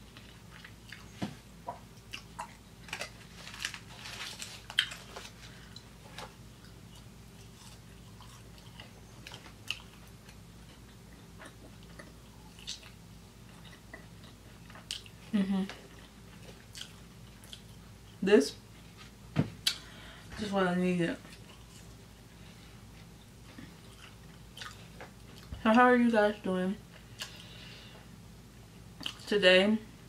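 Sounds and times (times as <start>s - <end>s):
person chewing food: 0.0s - 18.2s, 21.3s - 25.5s, 26.9s - 28.0s, 29.0s - 29.2s.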